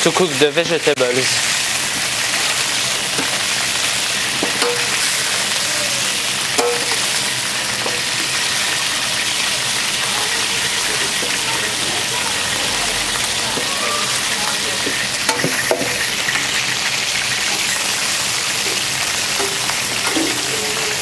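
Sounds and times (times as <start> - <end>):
chicken sizzling in oil: 0.0 - 21.0
tongs clinking on metal: 4.4 - 5.1, 6.6 - 7.1, 19.3 - 21.0.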